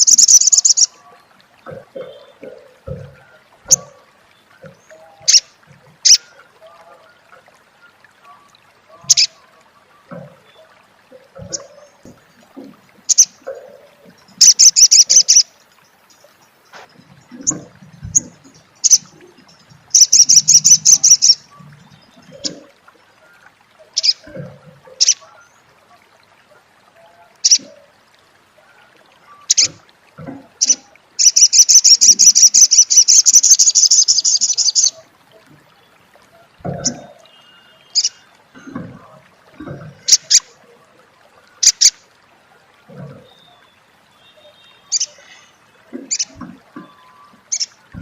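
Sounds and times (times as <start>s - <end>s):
bird chattering trills: 0.0s - 0.9s, 14.4s - 15.5s, 20.0s - 21.4s, 30.6s - 35.0s.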